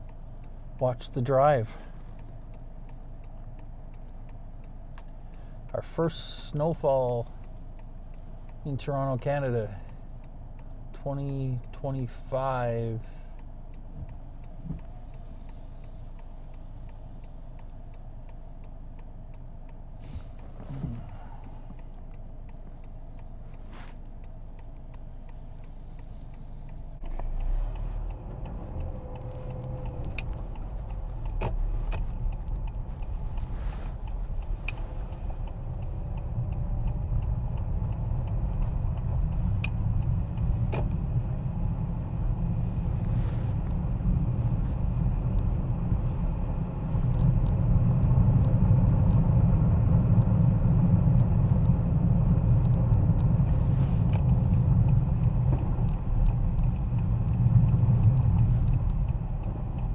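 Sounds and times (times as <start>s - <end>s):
engine and tyre rumble: 0.0s - 59.9s
faint clicks: 12.7s - 50.4s, 51.2s - 59.9s.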